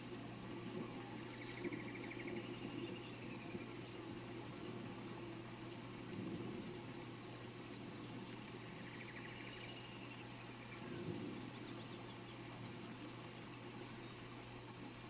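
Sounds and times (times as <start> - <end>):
rain falling: 0.0 - 15.0
faint bird chirps: 1.0 - 4.2, 8.7 - 12.5.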